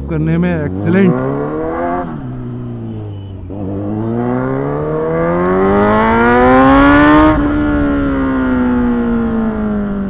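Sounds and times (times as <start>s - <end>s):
motorcycle engine accelerating: 0.3s - 10.0s.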